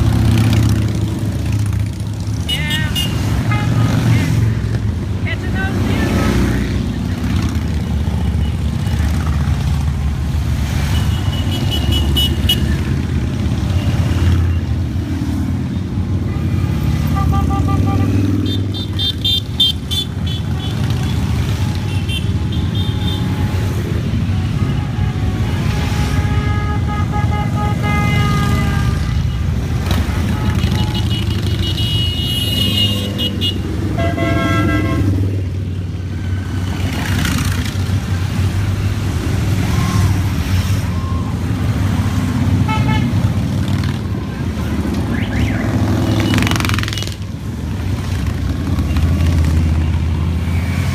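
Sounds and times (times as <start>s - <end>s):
horns tooting: 0.0s - 10.0s, 10.6s - 37.4s, 38.8s - 50.9s
motorcycles riding past: 0.0s - 50.9s.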